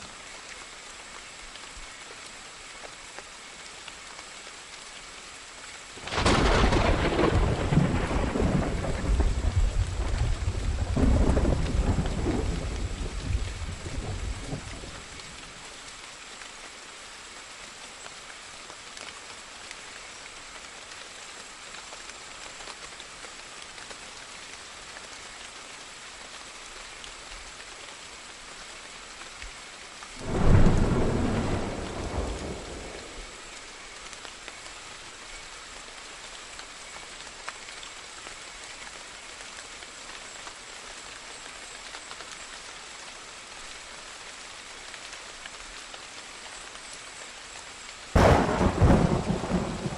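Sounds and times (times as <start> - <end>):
steady rain falling: 0.0 - 49.9
thunder clap: 30.2 - 33.2, 48.2 - 49.9.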